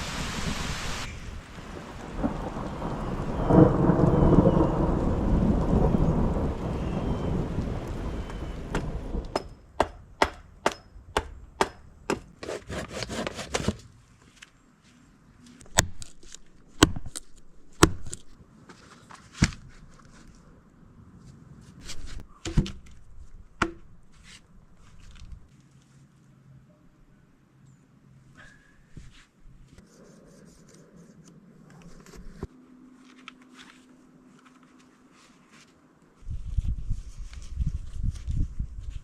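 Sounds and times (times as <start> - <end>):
rain and thunder rumble: 0.0 - 9.4
wood being struck: 8.7 - 12.6, 15.7 - 16.2, 17.8 - 18.2, 23.6 - 24.0.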